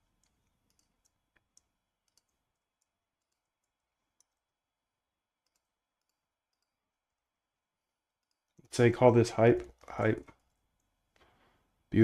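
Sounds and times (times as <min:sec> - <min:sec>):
mouse and keyboard clicks: 0:00.0 - 0:04.5, 0:05.4 - 0:06.8.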